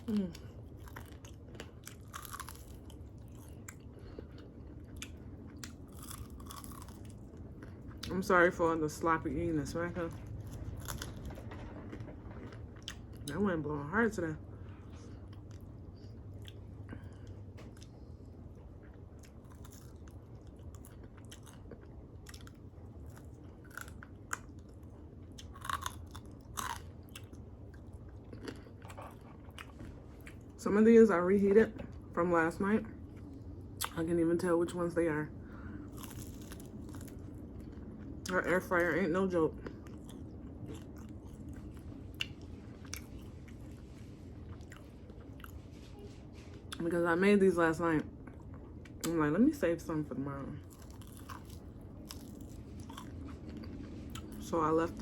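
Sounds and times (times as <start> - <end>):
chewing crispy chicken wings: 0.0 - 9.0, 10.1 - 13.4, 14.4 - 30.6, 35.6 - 45.8, 50.6 - 54.5
low steady hum: 0.0 - 55.0
crunchy bites: 0.8 - 3.6, 5.0 - 7.2, 25.4 - 27.3, 35.9 - 37.2.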